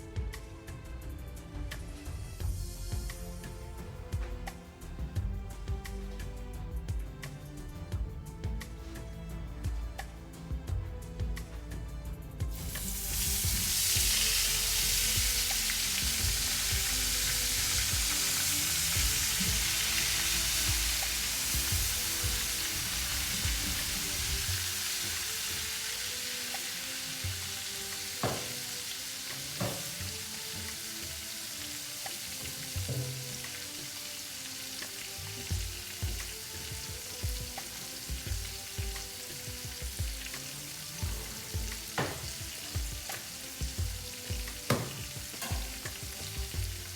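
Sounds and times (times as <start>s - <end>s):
food sizzling in oil: 12.5s - 46.9s
utensil knocking against pan: 28.2s - 30.2s, 32.4s - 33.4s, 41.0s - 46.6s.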